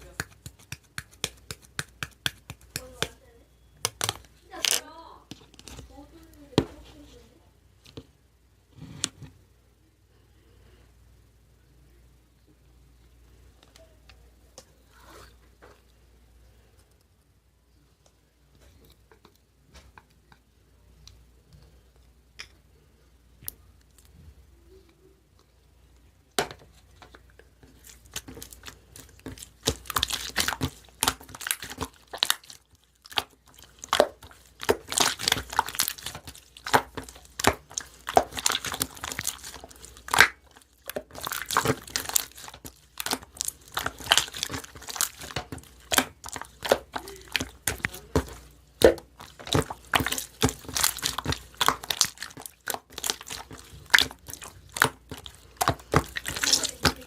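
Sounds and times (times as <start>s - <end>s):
slime crackling and popping: 0.0s - 3.2s, 3.8s - 4.9s, 27.7s - 57.0s.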